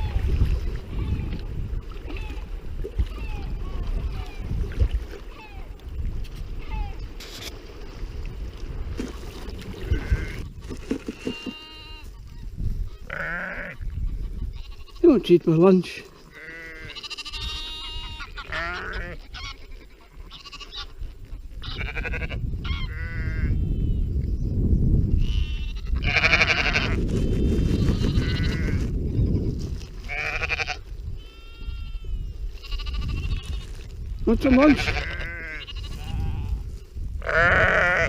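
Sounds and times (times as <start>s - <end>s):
sheep bleating: 11.2s - 12.1s, 12.9s - 13.8s, 16.3s - 20.9s, 21.6s - 23.6s, 25.2s - 27.0s, 27.8s - 28.8s, 30.1s - 33.6s, 34.4s - 38.0s.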